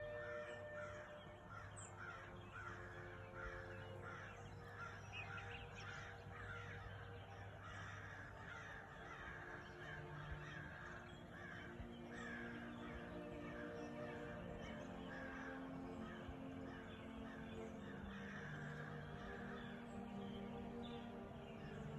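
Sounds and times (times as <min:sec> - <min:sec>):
birds calling: 0:00.0 - 0:21.9.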